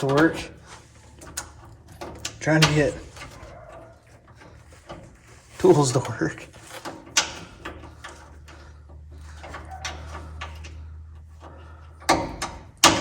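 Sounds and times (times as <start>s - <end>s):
hand tools clicking and knocking: 0.0s - 13.0s
tools clattering: 0.0s - 13.0s.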